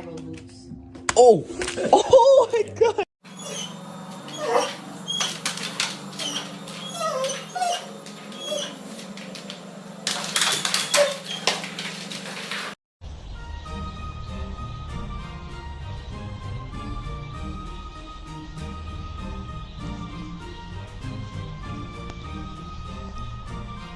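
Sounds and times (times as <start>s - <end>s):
dog whimpering and yipping: 3.3s - 9.3s, 10.3s - 11.7s.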